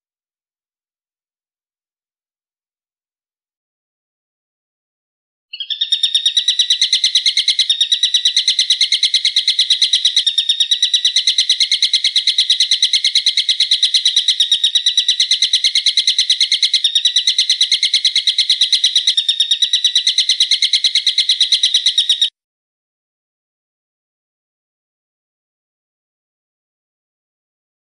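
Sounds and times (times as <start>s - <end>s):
bird calling rapidly: 5.5s - 22.3s.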